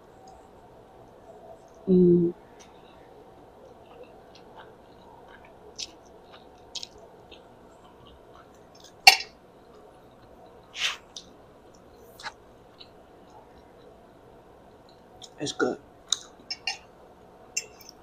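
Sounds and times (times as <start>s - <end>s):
mouth chewing spaghetti: 3.6s - 14.0s.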